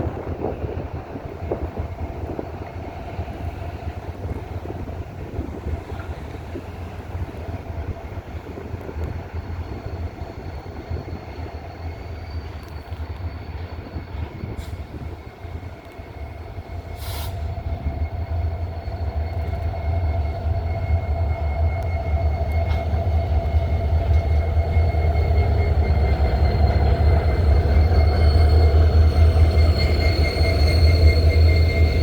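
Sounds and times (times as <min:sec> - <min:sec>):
train rumbling on rails: 0:00.0 - 0:32.0
high wheel squeal: 0:09.3 - 0:32.0.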